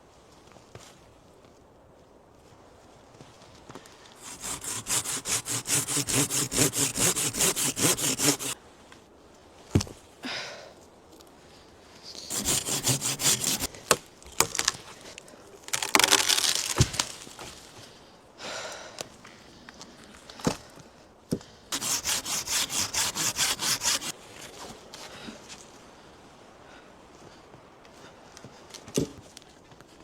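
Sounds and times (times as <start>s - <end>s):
hand saw cutting wood: 4.2s - 8.6s, 12.2s - 13.7s, 21.7s - 24.1s
rough scrape: 4.2s - 8.6s, 12.1s - 13.7s, 21.7s - 24.7s.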